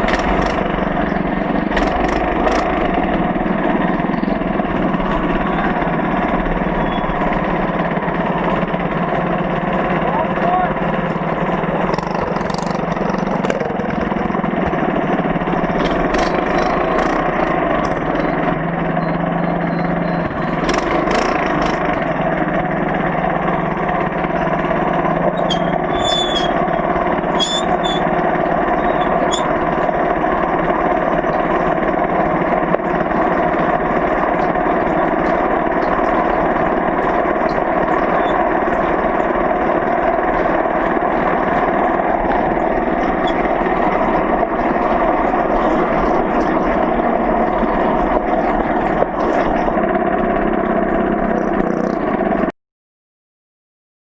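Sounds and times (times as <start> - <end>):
sharp clicks: 0.0 - 2.9, 15.6 - 18.5, 20.2 - 22.2
small engine running: 0.0 - 52.5.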